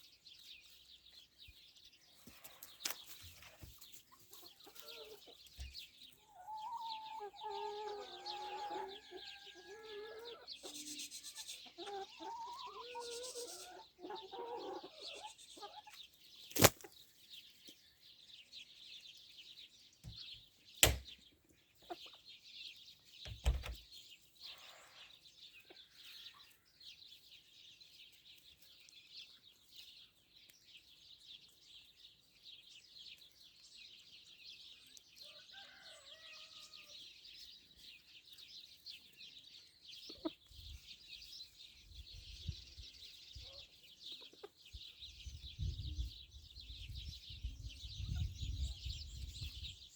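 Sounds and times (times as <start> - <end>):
chickens clucking: 2.2 - 17.0, 21.6 - 22.4, 39.9 - 41.6, 42.4 - 46.1.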